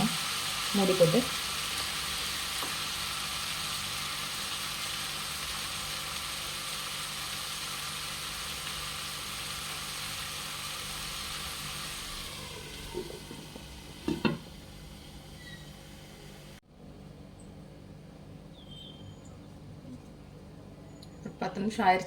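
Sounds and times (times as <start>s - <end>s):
chicken sizzling in a pan: 0.0s - 16.6s.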